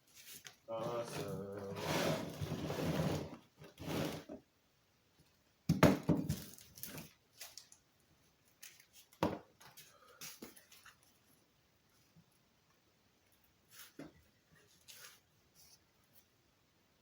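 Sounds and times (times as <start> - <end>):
parts and packaging handled: 0.0 - 4.4, 6.0 - 11.5, 13.2 - 16.4.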